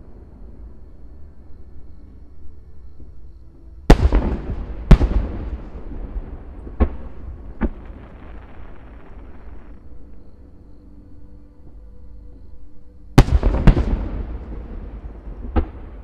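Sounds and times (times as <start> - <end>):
fireworks booming: 3.9 - 9.8, 13.2 - 16.0.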